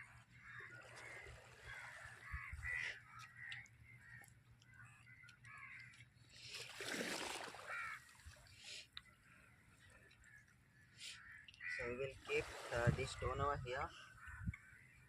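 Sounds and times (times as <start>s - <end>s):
crows cawing: 0.4s - 6.1s, 7.6s - 8.2s, 10.2s - 11.9s.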